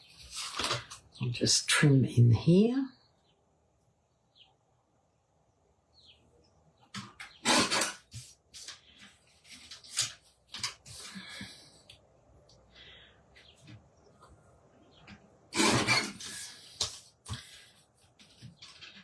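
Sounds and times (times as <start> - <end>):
card scraping and tapping: 0.2 - 1.0
paper trimmer blade rasping: 7.3 - 8.2, 15.5 - 16.6.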